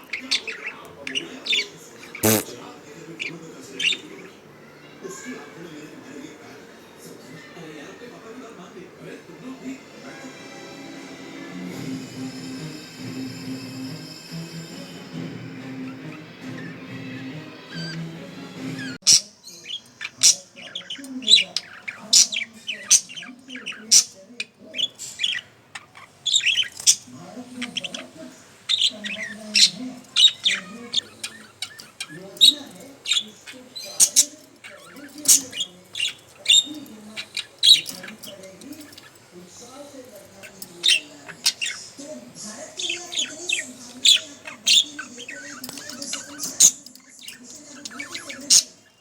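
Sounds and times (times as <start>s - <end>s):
budgerigar chirping and squawking: 0.0s - 4.4s, 15.8s - 49.0s
budgerigar warbling: 1.4s - 2.6s, 28.7s - 39.2s, 42.8s - 49.0s.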